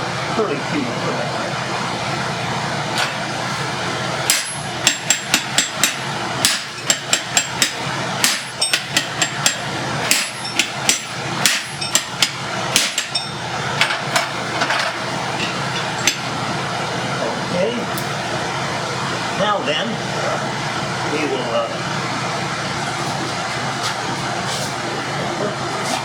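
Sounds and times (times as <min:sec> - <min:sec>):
steady background noise: 0:00.0 - 0:26.0.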